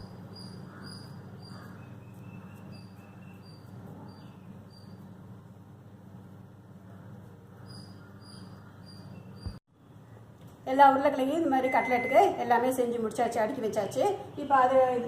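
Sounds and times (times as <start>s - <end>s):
faint high chirps: 11.6s - 12.4s.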